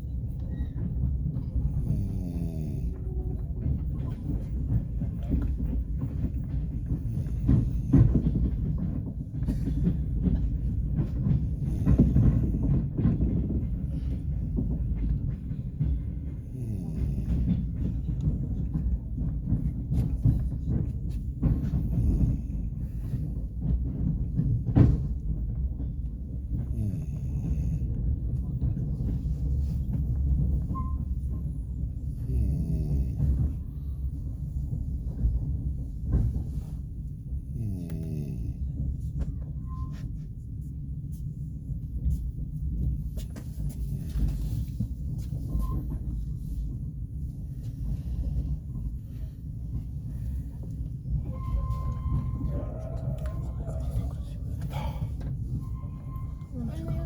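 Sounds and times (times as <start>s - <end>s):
train carriage rumbling: 0.0s - 57.0s
sharp knocks and clanks: 3.6s - 27.6s.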